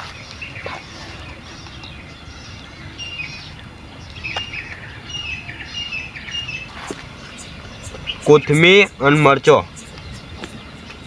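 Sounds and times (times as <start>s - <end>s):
birds chirping: 0.0s - 11.0s
low outdoor hum: 0.0s - 11.0s.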